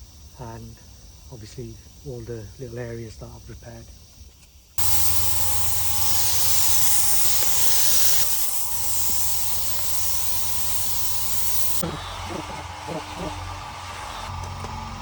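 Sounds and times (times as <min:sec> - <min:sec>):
paint spray gun hissing: 0:04.8 - 0:11.8.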